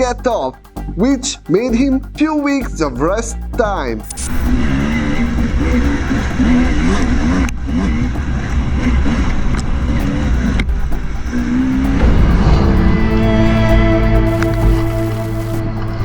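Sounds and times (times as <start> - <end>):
background music: 0.0 - 16.0
dirt bike engines revving: 4.5 - 12.8.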